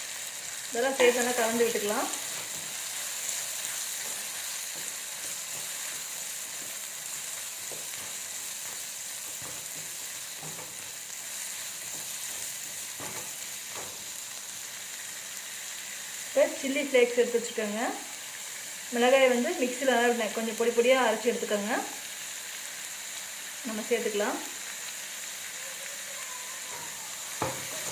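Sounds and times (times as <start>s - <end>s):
vegetables sizzling in oil: 0.0s - 27.9s.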